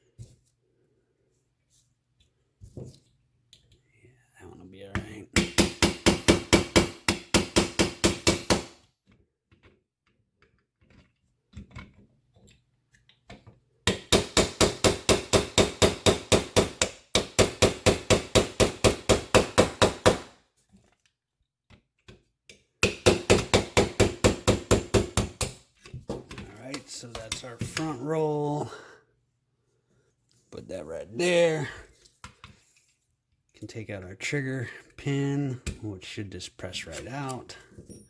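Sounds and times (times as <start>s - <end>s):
hammer tapping a pin punch: 5.4s - 8.8s, 13.8s - 20.3s, 22.8s - 25.6s.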